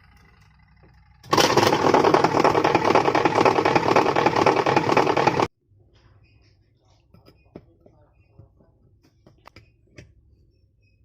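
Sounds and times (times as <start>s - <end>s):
washing machine rattling: 1.3s - 5.5s.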